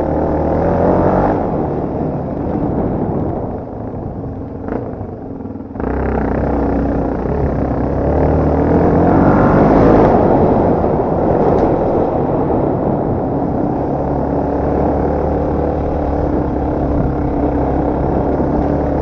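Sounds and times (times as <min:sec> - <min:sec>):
dirt bike engine revving: 0:05.8 - 0:11.0.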